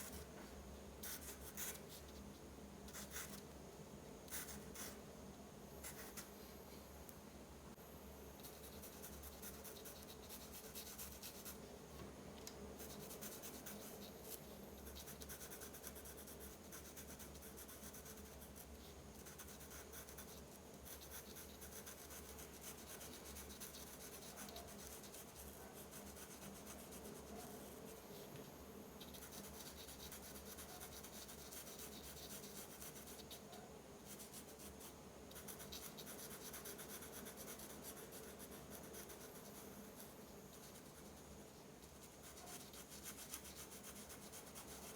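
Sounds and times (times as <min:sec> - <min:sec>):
drawing tool scratching on paper: 0:12.8 - 0:27.8, 0:29.0 - 0:33.4.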